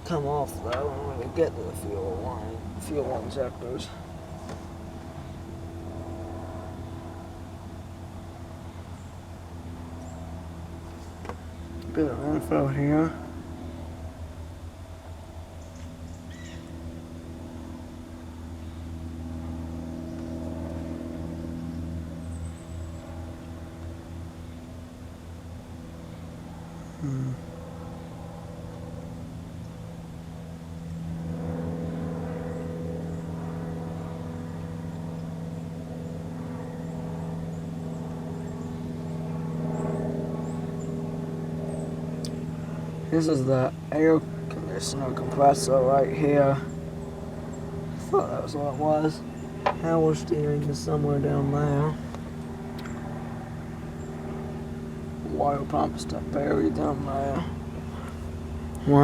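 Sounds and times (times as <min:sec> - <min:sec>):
car engine idling: 0:00.0 - 0:05.5, 0:55.0 - 0:59.0.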